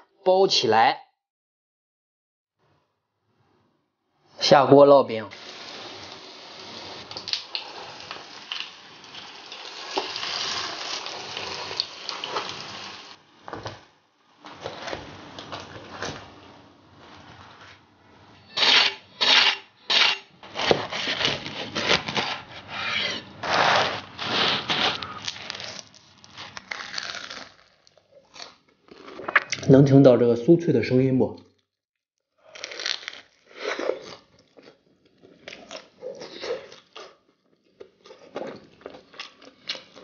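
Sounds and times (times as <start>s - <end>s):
food frying in oil: 5.4s - 13.6s
crunchy bites and chewing: 24.7s - 29.7s, 32.4s - 37.2s.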